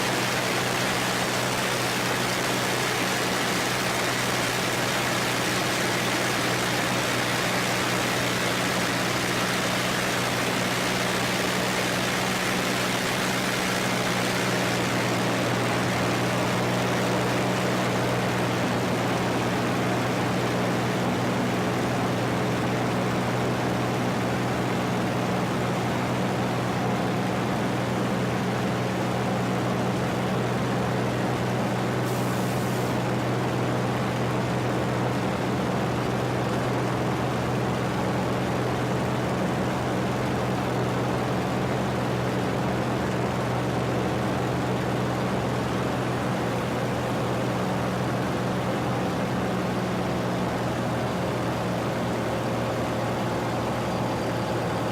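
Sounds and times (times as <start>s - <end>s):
aircraft engine droning: 0.0s - 54.9s
rushing hiss: 32.0s - 33.0s.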